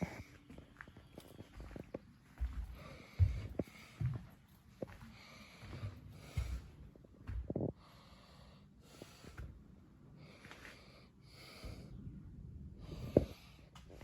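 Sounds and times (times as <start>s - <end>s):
breathing close to microphone: 2.7s - 9.6s, 10.2s - 14.0s.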